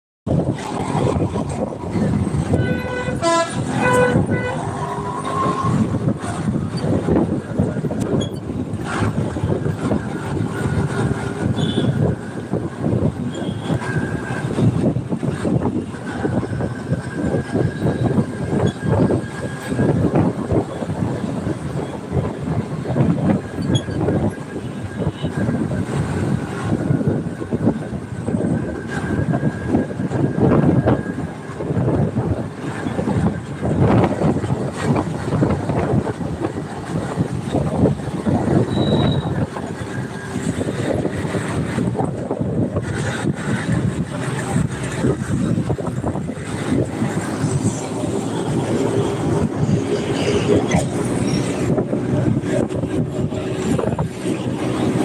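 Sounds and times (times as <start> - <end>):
train rumbling on rails: 0.3 - 55.0
vehicle running noise: 0.3 - 55.0
horn short toots: 2.5 - 5.4.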